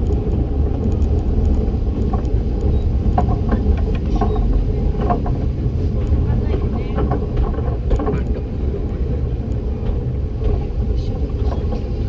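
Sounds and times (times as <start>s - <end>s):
train wheels rumbling on rails: 0.0s - 12.0s
squeaks and clicks: 2.1s - 4.6s.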